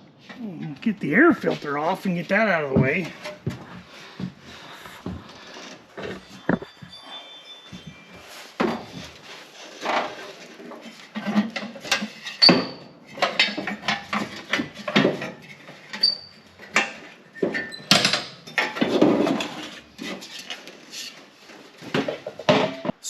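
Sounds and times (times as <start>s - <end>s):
high metallic squeaks: 4.8s - 9.0s.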